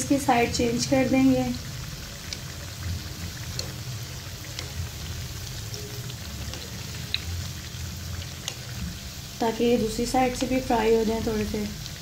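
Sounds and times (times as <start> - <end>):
deep-frying sizzle in oil: 0.0 - 12.0
small crackles: 1.5 - 9.4.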